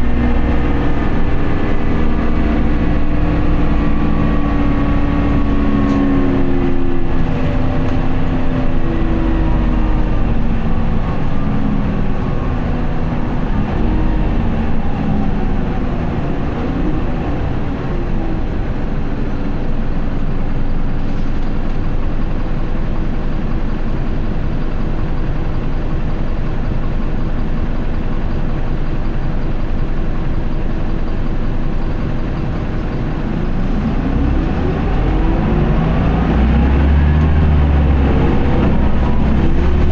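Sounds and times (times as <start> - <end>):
road noise: 0.0 - 23.0, 30.6 - 39.9
diesel bus engine: 0.0 - 39.9.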